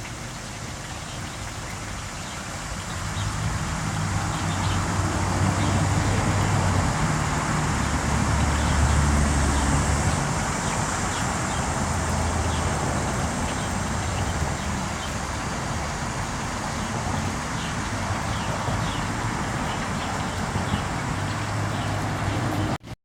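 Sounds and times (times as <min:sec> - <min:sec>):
passing road traffic hiss: 0:00.0 - 0:23.0
low engine hum: 0:01.3 - 0:22.9.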